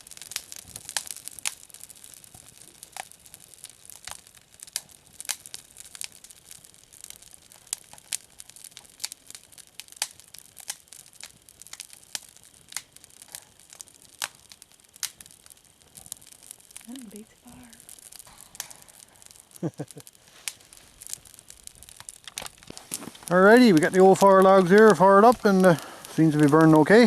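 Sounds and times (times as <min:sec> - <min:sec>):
fire log crackling: 0:00.0 - 0:27.0.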